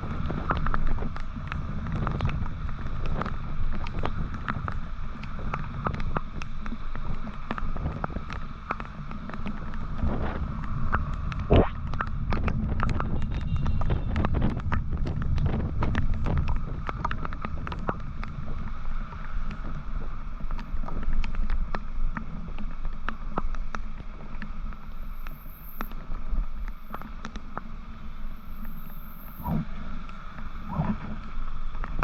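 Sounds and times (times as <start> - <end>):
wind rush: 9.8 - 21.3, 24.7 - 32.0.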